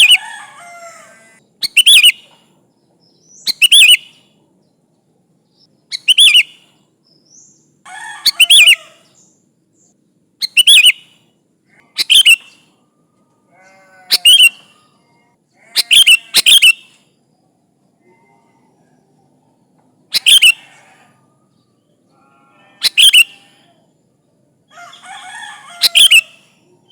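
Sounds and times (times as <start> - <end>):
fainter lower bird calls: 0.0 - 26.9
bird singing whistled phrases: 1.6 - 2.2, 3.3 - 4.2, 5.9 - 6.5, 10.4 - 11.0, 12.0 - 12.6, 14.1 - 14.8, 15.8 - 17.0, 20.2 - 20.6, 22.8 - 23.5, 25.8 - 26.9.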